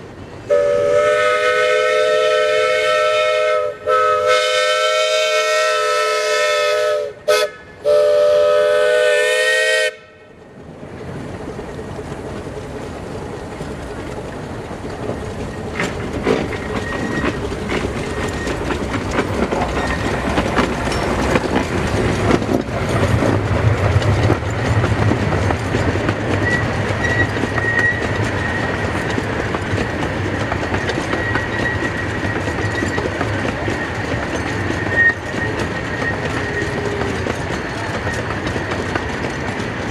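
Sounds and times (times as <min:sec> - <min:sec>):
rail clicks: 0:00.0 - 0:39.9
train wheels rumbling on rails: 0:00.0 - 0:39.9
steam locomotive whistle blasts: 0:00.5 - 0:10.2.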